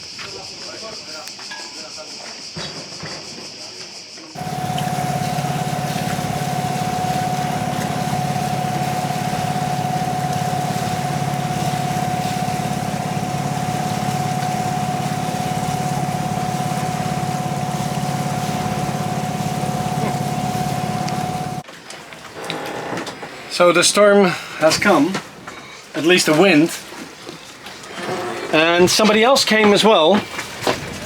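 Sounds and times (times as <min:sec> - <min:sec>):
boat engine droning: 0:04.4 - 0:21.6
steady whine: 0:04.4 - 0:21.6.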